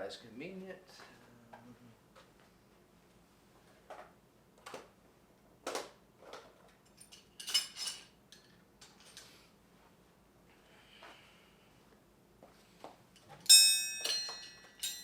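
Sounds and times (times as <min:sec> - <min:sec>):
metal tools clinking: 0:06.8 - 0:09.3, 0:13.2 - 0:15.0.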